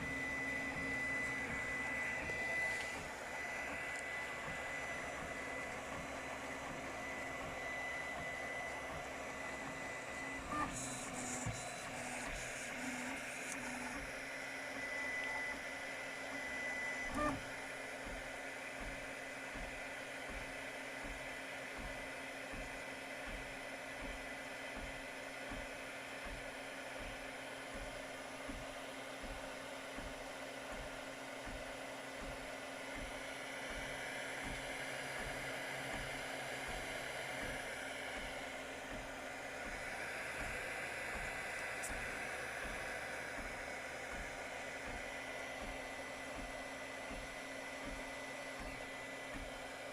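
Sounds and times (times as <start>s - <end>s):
fan hum: 0.0s - 13.9s
motors pulsing: 0.0s - 17.6s
printer motors whining: 0.0s - 49.9s.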